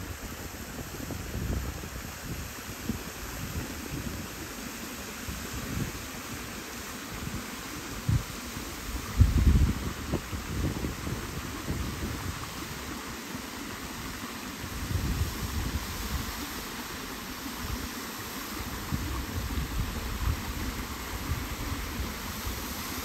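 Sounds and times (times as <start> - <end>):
running water rushing: 0.0 - 23.0
wind buffeting microphone: 0.1 - 4.4, 8.0 - 12.8, 14.6 - 16.5, 18.6 - 22.8.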